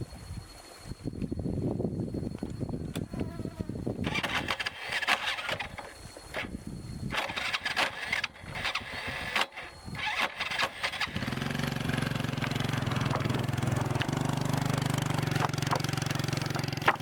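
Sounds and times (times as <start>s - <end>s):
small engine running: 4.0s - 17.0s
knocks and clatter: 12.4s - 17.0s.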